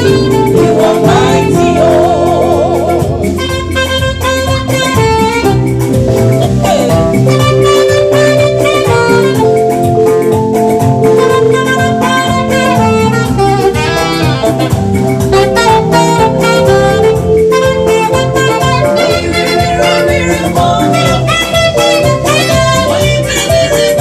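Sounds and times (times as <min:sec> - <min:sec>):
drums and percussion: 0:00.0 - 0:24.0
saxophone: 0:00.0 - 0:24.0.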